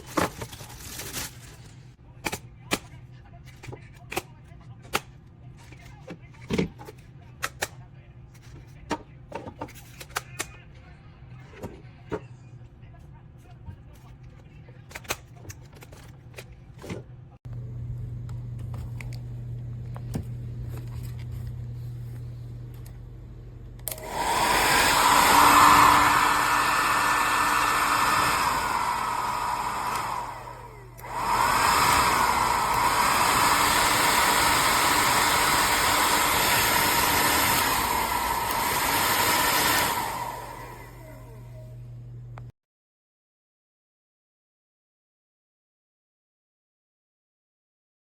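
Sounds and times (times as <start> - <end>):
hair dryer blowing: 23.9 - 41.6.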